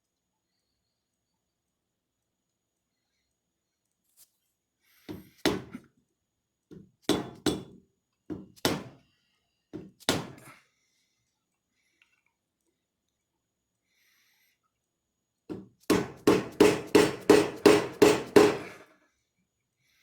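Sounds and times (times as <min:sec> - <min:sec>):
hammer blows on metal: 0:15.9 - 0:18.8.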